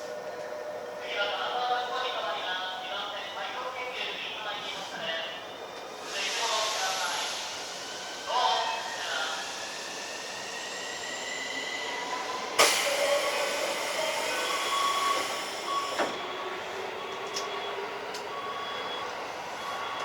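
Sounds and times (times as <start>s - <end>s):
electric train rumble with motor whine: 7.2s - 18.6s.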